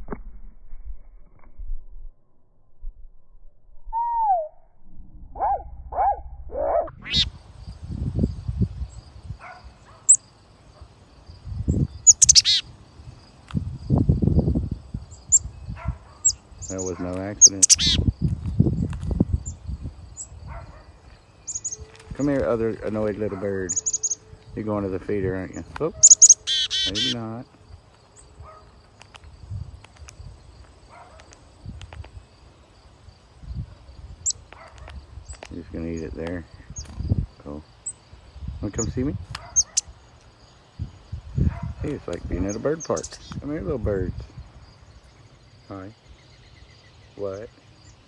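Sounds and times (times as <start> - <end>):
low rumbles: 0.0 - 9.4
short high bird notes: 3.9 - 4.6
chickadee calling: 4.0 - 4.5, 5.4 - 7.8, 8.4 - 11.0, 11.7 - 13.8, 14.9 - 18.3, 19.3 - 27.5, 34.2 - 37.0, 38.7 - 40.0, 41.5 - 44.0
insect trill: 5.4 - 48.0.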